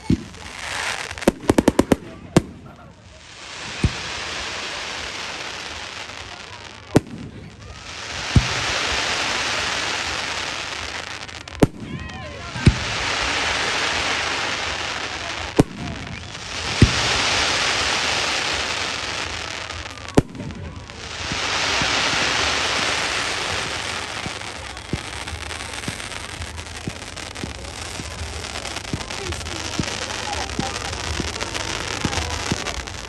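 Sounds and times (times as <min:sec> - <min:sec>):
crackling hiss of fireworks: 0:00.0 - 0:33.0
fireworks bangs: 0:00.0 - 0:33.0
small fireworks pops: 0:00.0 - 0:33.0.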